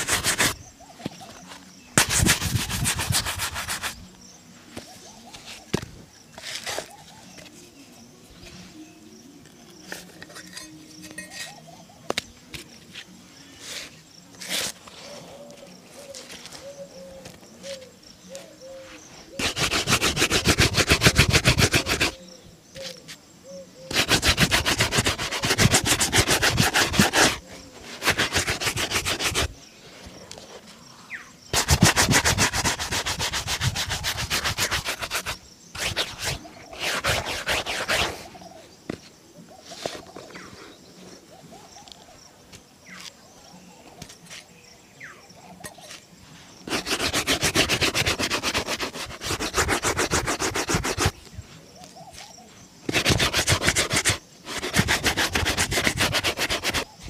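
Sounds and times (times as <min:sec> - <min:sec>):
shoe brush scrubbing: 0:00.0 - 0:00.6, 0:02.0 - 0:04.1, 0:19.3 - 0:22.2, 0:23.9 - 0:29.6, 0:31.5 - 0:38.3, 0:46.6 - 0:51.2, 0:52.9 - 0:57.0.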